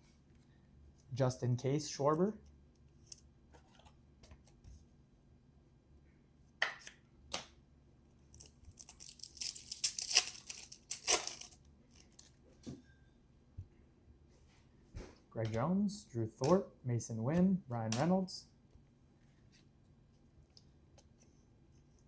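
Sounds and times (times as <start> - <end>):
wrapper tearing and crinkling: 8.3 - 12.3.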